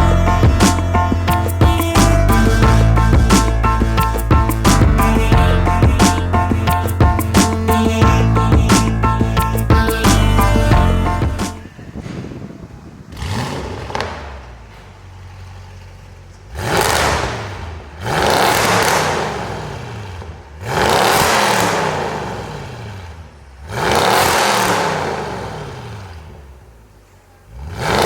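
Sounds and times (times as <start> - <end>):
car engine revving: 0.0 - 11.8, 13.0 - 26.9, 27.5 - 28.0.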